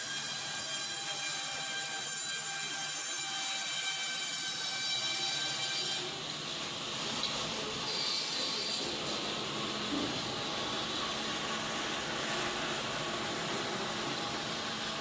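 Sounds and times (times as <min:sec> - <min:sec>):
sawmill machinery whining: 0:07.7 - 0:15.0.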